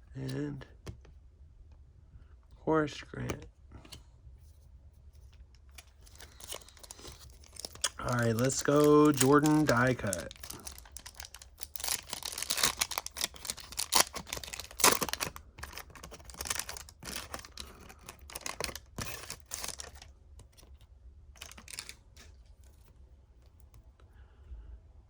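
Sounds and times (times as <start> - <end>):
cards being handled: 3.2 - 20.8, 21.4 - 23.0
card pack wrapper tearing: 5.8 - 20.7, 21.4 - 22.3.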